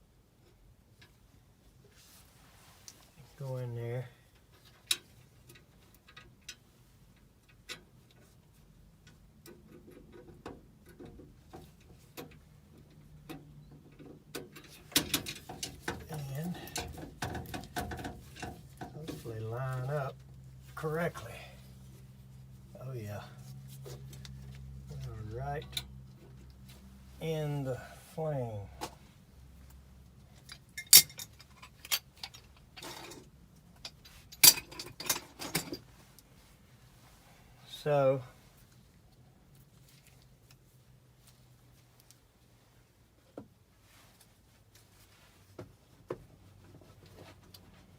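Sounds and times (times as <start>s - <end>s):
tools clicking and knocking: 9.0s - 19.0s, 30.4s - 35.8s.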